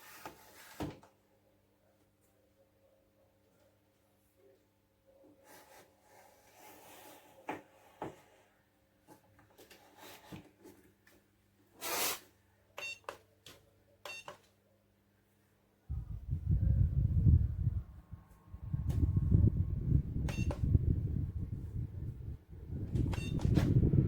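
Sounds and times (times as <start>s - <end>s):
short electronic beeps: 20.3s - 20.6s.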